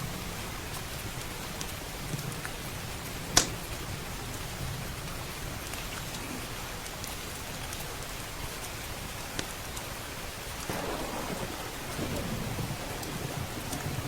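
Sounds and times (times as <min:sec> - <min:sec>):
steady rain: 0:00.0 - 0:14.0
wood fire popping: 0:10.6 - 0:14.0.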